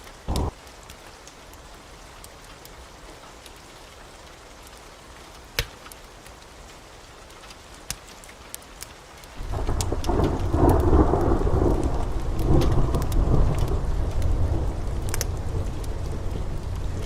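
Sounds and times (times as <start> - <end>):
heavy rain: 0.0 - 17.0
sharp crackles: 0.0 - 17.0
deep thunder rumble: 0.3 - 0.6, 9.4 - 17.0.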